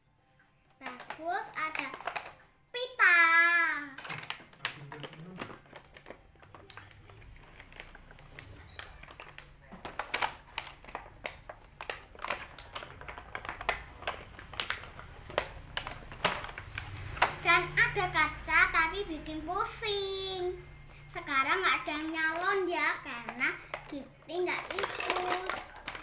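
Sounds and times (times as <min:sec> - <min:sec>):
crinkling: 0:00.6 - 0:02.5, 0:03.8 - 0:20.1, 0:21.1 - 0:26.0
plastic toy pieces clicking: 0:00.8 - 0:02.4, 0:03.9 - 0:17.4, 0:23.2 - 0:26.0.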